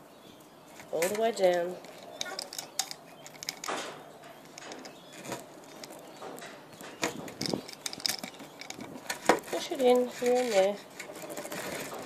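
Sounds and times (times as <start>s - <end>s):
spline roller clicks and scrapes: 4.4s - 12.0s.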